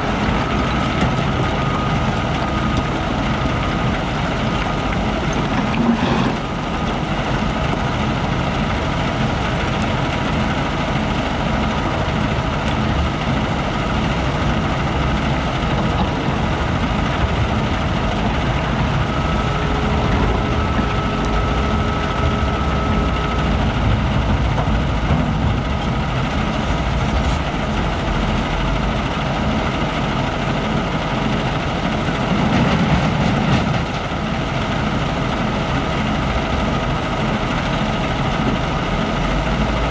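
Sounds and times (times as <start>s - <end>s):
heavy diesel machinery running: 0.0s - 39.9s
thin mechanical whine: 18.4s - 24.0s.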